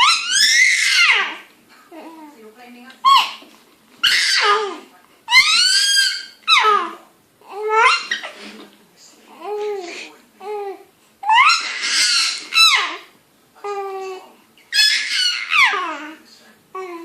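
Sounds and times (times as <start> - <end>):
baby squealing: 0.0 - 1.5, 3.0 - 8.4, 11.2 - 13.1, 13.7 - 16.2.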